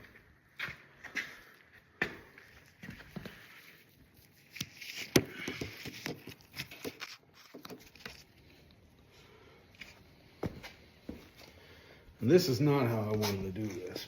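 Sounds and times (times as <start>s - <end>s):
rustling: 2.4s - 8.8s.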